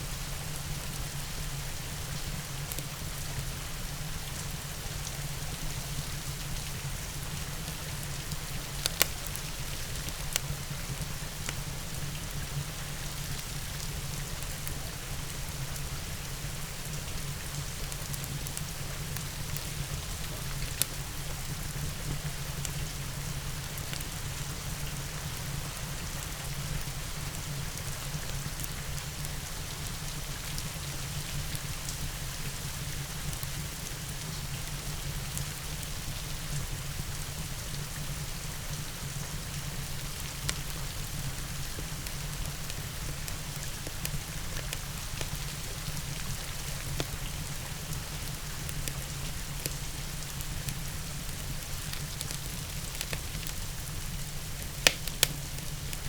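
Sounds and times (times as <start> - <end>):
steady rain: 0.0 - 56.0
crackling fireplace: 0.2 - 56.0
fire popping: 8.3 - 10.4, 49.6 - 56.0.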